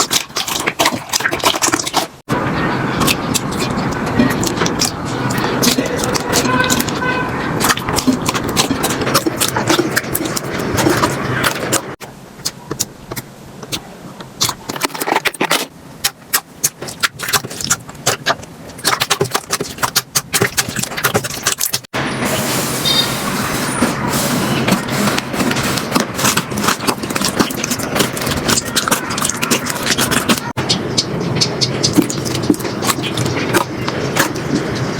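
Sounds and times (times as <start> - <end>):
slime squished and popping: 14.4 - 21.9, 24.7 - 30.6, 31.7 - 34.5.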